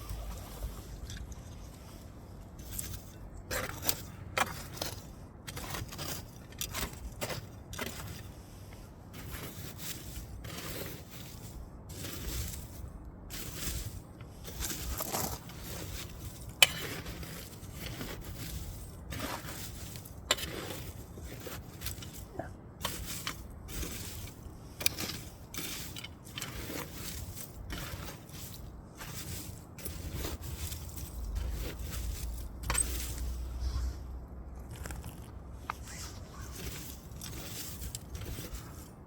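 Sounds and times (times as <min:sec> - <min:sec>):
low steady rumble: 0:22.2 - 0:39.0.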